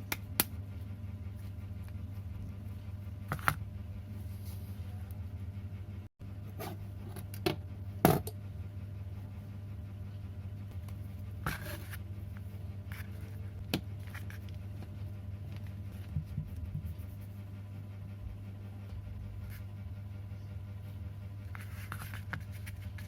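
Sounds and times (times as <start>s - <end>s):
steady low hum: 0.0s - 23.0s
objects being handled: 10.8s - 16.8s, 21.5s - 23.0s.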